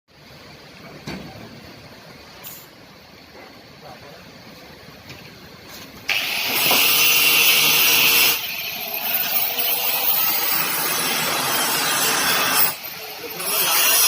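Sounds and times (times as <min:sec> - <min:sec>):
steam hissing: 0:06.1 - 0:14.0.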